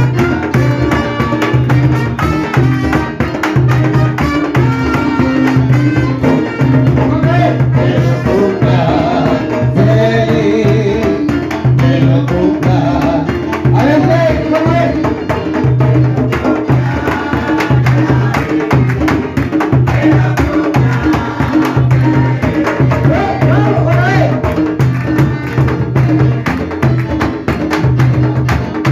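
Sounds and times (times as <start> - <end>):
drums in steady rhythm: 0.0 - 28.9
person singing: 4.7 - 19.3, 19.9 - 24.7.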